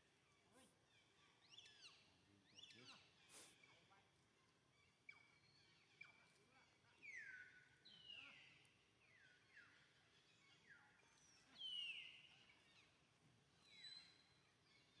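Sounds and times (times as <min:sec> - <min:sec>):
faint whistling bird calls: 0:01.5 - 0:03.9, 0:10.8 - 0:13.0, 0:13.6 - 0:15.0.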